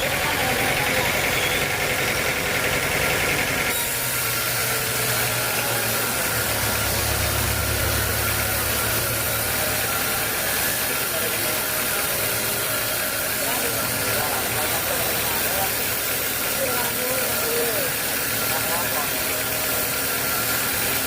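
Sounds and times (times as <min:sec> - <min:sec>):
sawmill machinery running: 0:00.0 - 0:21.0.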